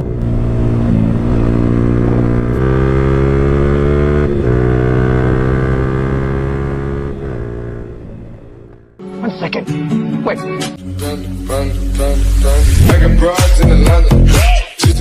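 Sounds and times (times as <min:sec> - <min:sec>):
motorcycle engine revving high: 0:00.0 - 0:09.0.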